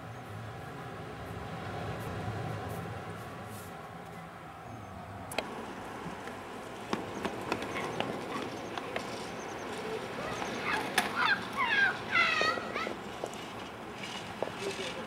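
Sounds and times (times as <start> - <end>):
bird calling with falling cries: 7.0 - 14.2.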